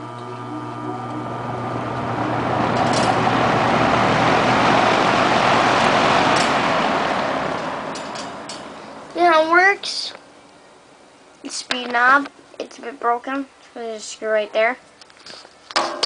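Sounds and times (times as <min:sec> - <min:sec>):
box fan motor humming: 0:00.0 - 0:10.4
fan air rushing: 0:00.0 - 0:15.6.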